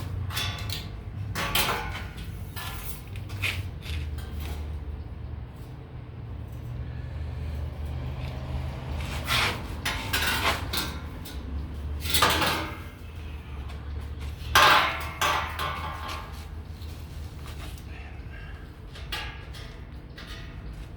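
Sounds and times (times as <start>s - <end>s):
steady low hum: 0.0s - 20.9s
metal knocking against metal: 14.5s - 16.4s.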